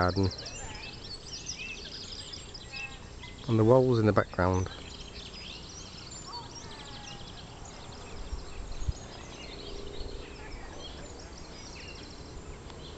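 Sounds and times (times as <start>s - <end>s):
outdoor background noise: 0.0s - 12.9s
songbirds singing: 0.0s - 12.9s.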